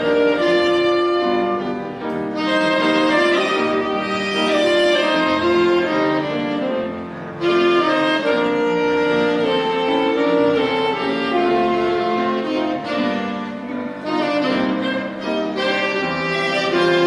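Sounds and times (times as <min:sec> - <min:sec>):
accompanying instrument: 0:00.0 - 0:17.0
violin slow melody: 0:00.0 - 0:17.0.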